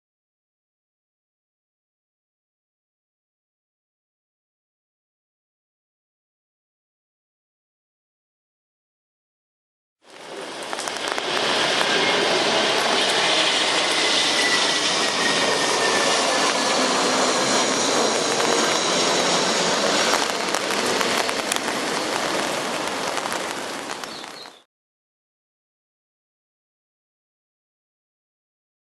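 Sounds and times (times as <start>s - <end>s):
faint jet engine whine: 10.0s - 24.7s
jet noise rushing: 10.1s - 24.6s.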